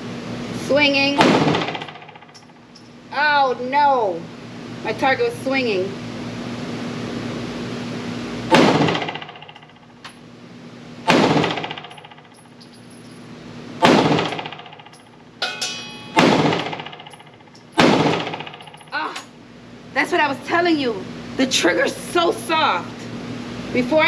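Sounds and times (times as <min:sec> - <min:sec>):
ventilation hum: 0:00.0 - 0:24.0
pistol shots echoing indoors: 0:01.2 - 0:02.6, 0:08.5 - 0:09.9, 0:11.0 - 0:12.4, 0:13.8 - 0:15.0, 0:16.1 - 0:18.9
faint gunshot cracks: 0:08.5 - 0:09.2, 0:16.2 - 0:16.8, 0:17.8 - 0:18.5.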